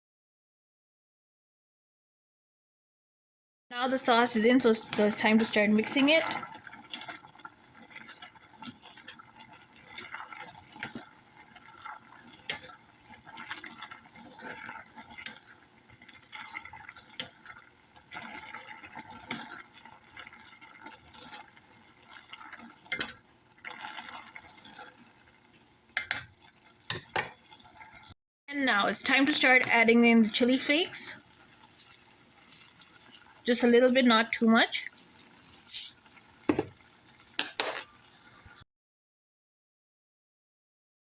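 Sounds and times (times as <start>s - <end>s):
utensil scraping a pot: 4.2s - 28.1s, 29.1s - 36.7s.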